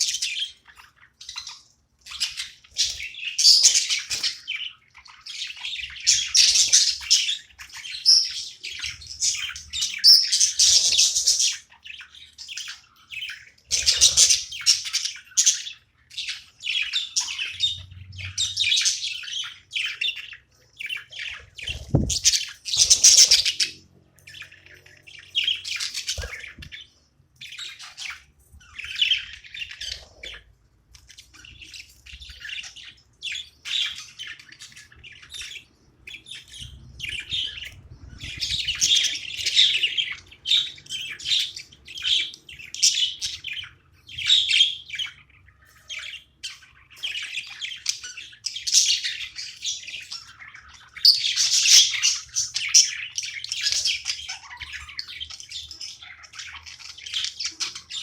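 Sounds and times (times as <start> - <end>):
budgerigars chirping: 0.0 - 58.0.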